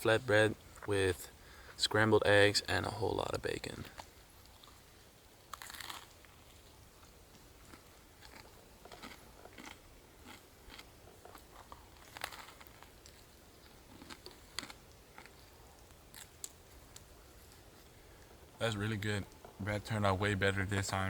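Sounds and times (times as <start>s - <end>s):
person chewing with crunches: 3.9s - 18.6s.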